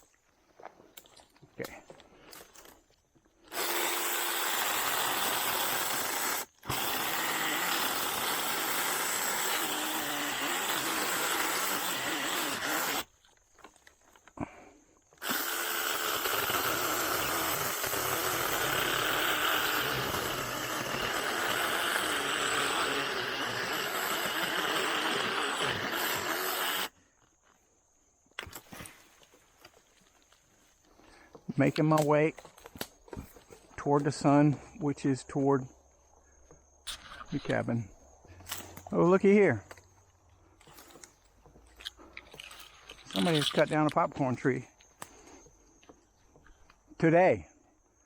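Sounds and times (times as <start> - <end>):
mini chainsaw cutting wood: 3.5 - 13.2, 15.1 - 27.0, 42.3 - 44.2.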